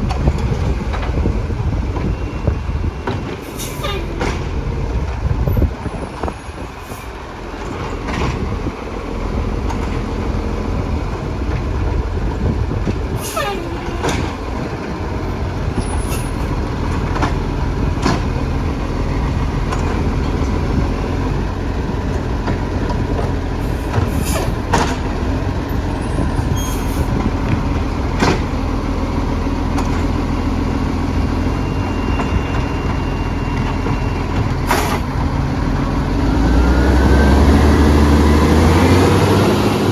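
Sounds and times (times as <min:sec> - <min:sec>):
garbage truck engine running: 0:00.0 - 0:39.9
sharp clanks and knocks: 0:03.0 - 0:05.2, 0:22.4 - 0:25.2.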